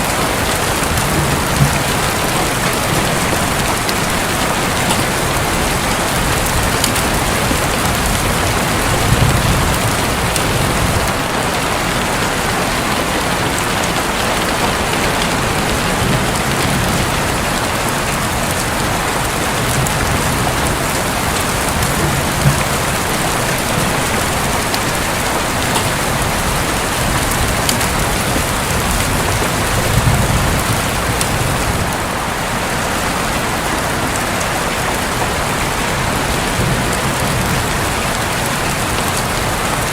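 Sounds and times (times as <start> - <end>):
low thunder rumbles: 0.0 - 12.4, 14.4 - 32.1
rain drumming on a roof: 0.0 - 39.9.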